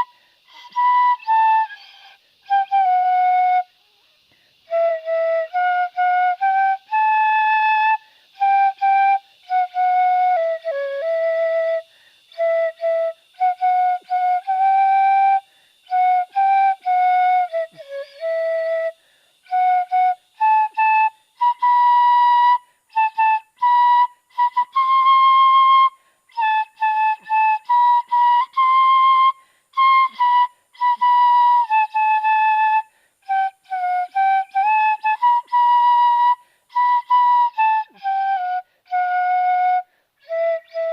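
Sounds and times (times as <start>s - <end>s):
bamboo flute playing: 0.0s - 40.9s.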